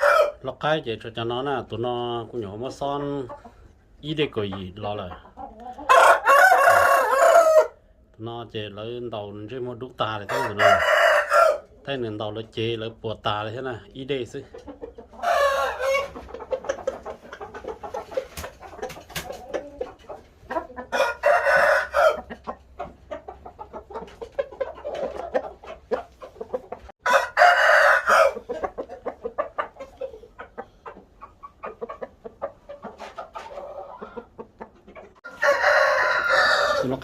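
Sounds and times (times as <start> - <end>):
roosters crowing: 0.0 - 0.5, 5.8 - 7.9, 10.1 - 11.7, 15.1 - 16.4, 20.7 - 22.6, 26.9 - 29.5, 35.1 - 37.0
chickens clucking: 0.0 - 37.0.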